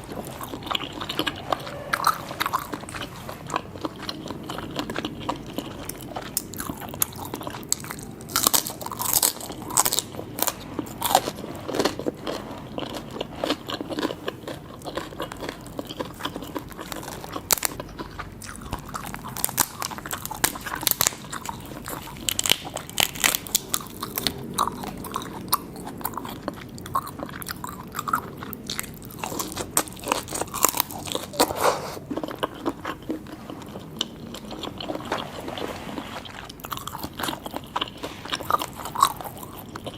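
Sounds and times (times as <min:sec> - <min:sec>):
person chewing seafood: 0:00.0 - 0:39.9.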